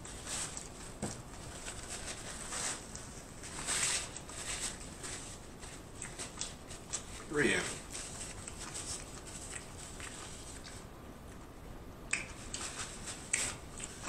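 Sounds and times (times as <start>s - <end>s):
person chewing food: 4.1s - 11.5s, 12.1s - 14.0s.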